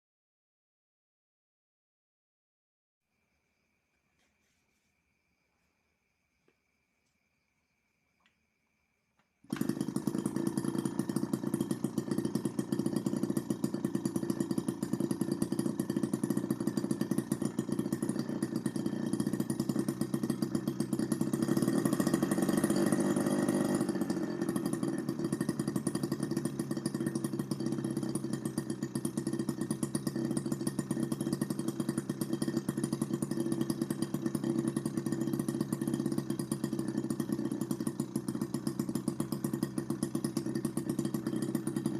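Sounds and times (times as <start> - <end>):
miniature two-stroke engine buzzing: 9.5 - 41.9.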